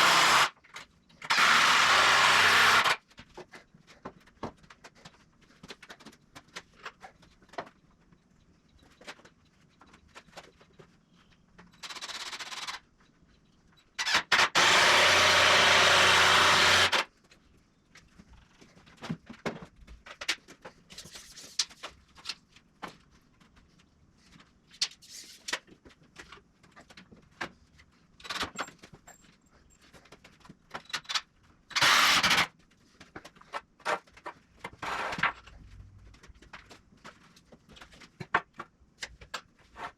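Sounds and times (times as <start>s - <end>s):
power tool running in bursts: 0.0s - 0.5s, 1.3s - 3.0s, 14.1s - 17.1s, 31.8s - 32.5s.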